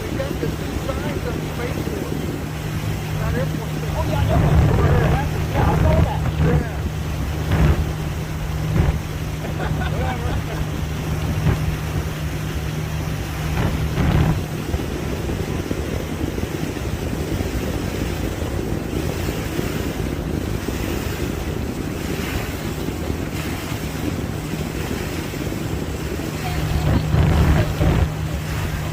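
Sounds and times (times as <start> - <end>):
boat motor droning: 0.0 - 28.9
water rushing past hull: 0.0 - 28.9
wind buffeting microphone: 0.0 - 28.9.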